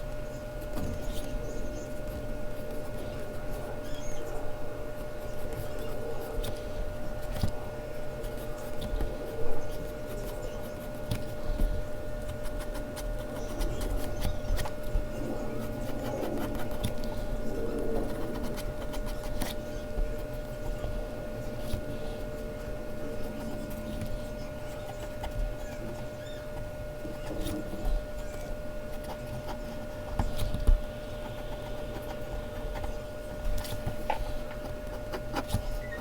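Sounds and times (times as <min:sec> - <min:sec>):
faint steady hum: 0:00.0 - 0:36.0
pencil scratching on paper: 0:08.2 - 0:20.8, 0:23.1 - 0:36.0.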